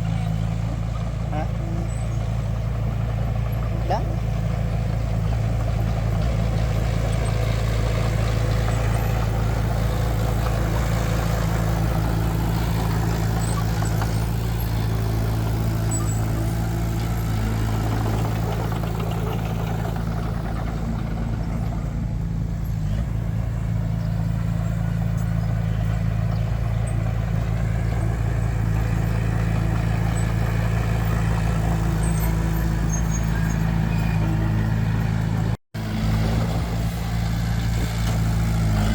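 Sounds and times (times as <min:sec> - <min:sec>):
diesel machinery engine droning: 0:00.0 - 0:38.9.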